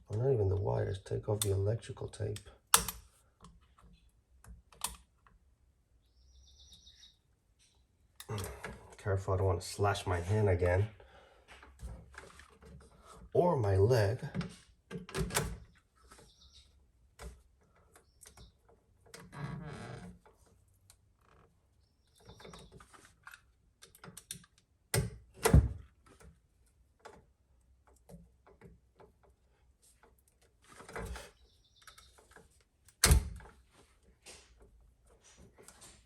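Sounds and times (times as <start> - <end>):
hand tools clicking and tapping: 2.7 - 3.9.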